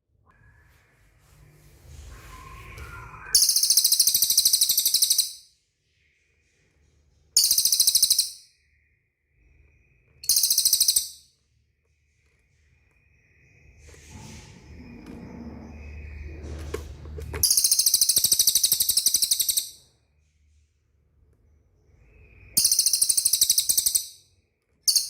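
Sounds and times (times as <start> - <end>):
bird buzzy trills: 10.2 - 11.1, 22.2 - 24.1.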